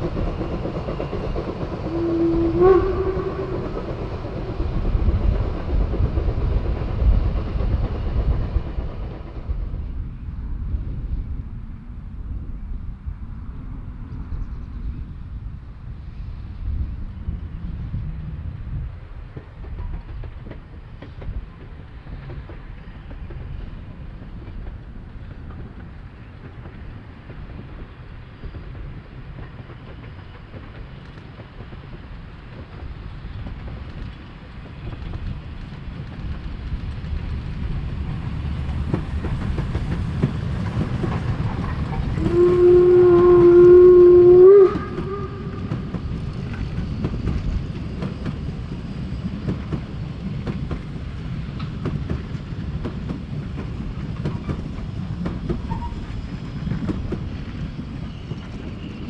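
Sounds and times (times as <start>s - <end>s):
steam locomotive running: 0.0s - 14.4s, 15.3s - 59.0s
steam whistle blast: 1.9s - 3.8s, 42.2s - 46.0s.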